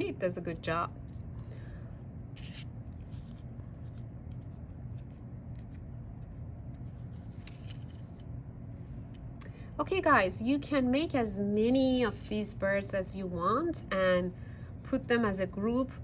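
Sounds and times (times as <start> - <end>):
steady low hum: 0.0 - 16.0
paper rustling: 2.4 - 8.2.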